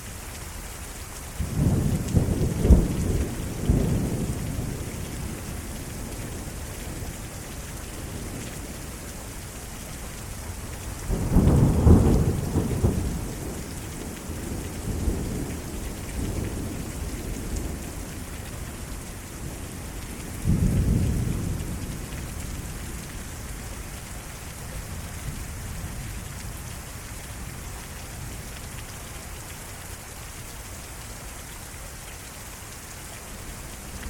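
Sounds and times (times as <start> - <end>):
heavy rain falling: 0.0 - 34.0
thunder rumbling and cracking: 1.4 - 5.4, 11.0 - 18.0, 20.4 - 23.1.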